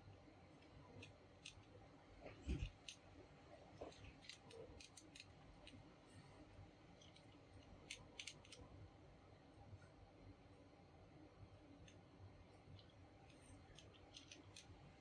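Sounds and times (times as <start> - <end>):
small parts clicking: 7.0 - 8.6, 12.8 - 14.8.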